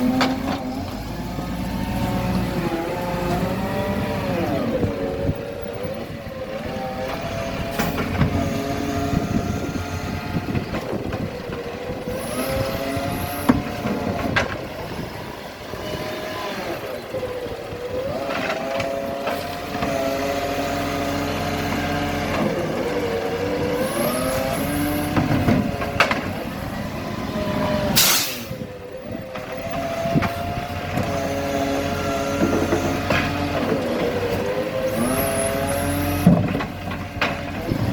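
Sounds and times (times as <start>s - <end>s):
garbage truck engine revving: 0.0s - 37.9s
air hiss burst: 28.0s - 28.5s.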